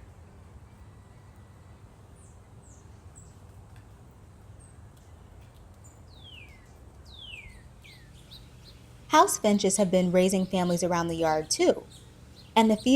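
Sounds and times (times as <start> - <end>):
faint low background rumble: 0.0 - 12.9
songbird chips: 4.9 - 12.9.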